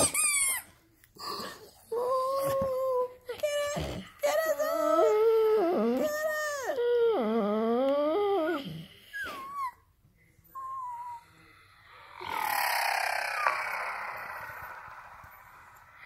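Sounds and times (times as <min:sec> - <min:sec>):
dog whining and howling: 0:01.9 - 0:09.8, 0:10.5 - 0:11.4
noisy falling sound: 0:12.2 - 0:16.0.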